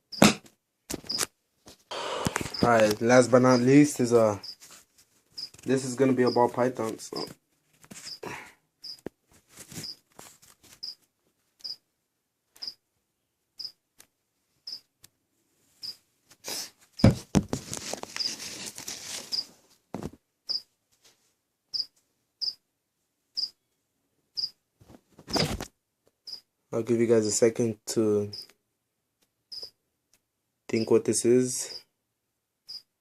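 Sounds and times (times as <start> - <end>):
packaging rustling: 17.3 - 19.4.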